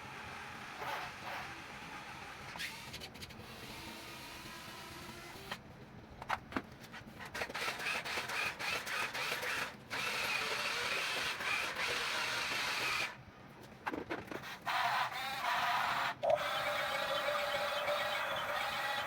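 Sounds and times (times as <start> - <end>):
toy excavator motors whirring: 7.2 - 13.2, 13.9 - 19.0.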